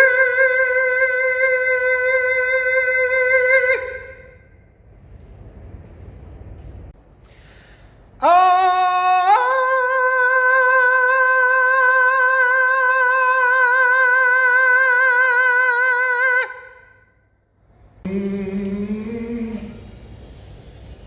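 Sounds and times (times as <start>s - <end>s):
person singing sustained vowel: 0.0s - 4.6s, 8.2s - 17.2s, 18.0s - 20.3s.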